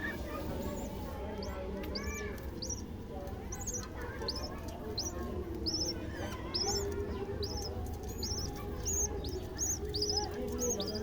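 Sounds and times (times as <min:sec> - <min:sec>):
bird chicks peeping: 0:00.4 - 0:11.0.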